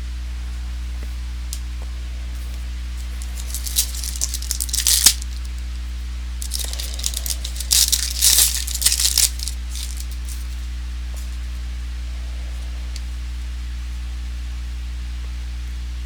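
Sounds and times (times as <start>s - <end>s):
low electrical hum: 0.0s - 16.0s
plastic wrappers crinkling: 3.0s - 5.6s, 6.4s - 10.7s.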